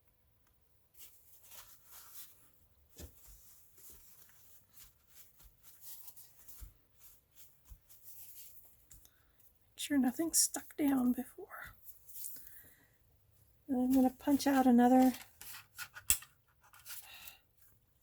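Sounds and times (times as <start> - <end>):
paper rustling and tapping: 1.4 - 9.2, 13.9 - 16.9.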